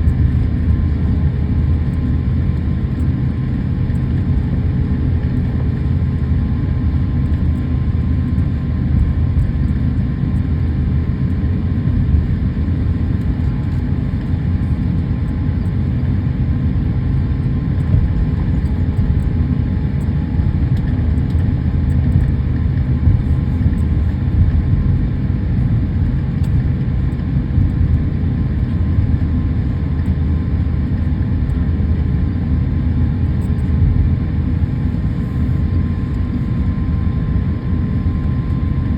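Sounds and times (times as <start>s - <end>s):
jet engines at low power: 0.0s - 38.9s.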